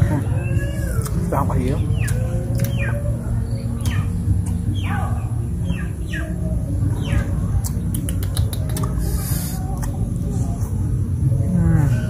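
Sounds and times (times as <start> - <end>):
steady low rumble: 0.0 - 12.0
bird chirping: 1.6 - 7.3.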